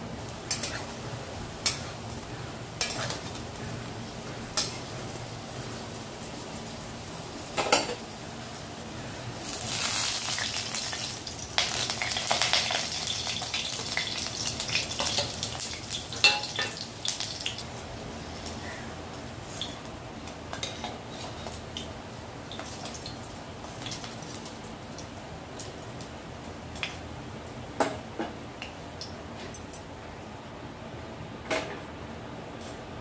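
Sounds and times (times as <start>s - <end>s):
kebabs sizzling in oil: 0.0s - 27.0s.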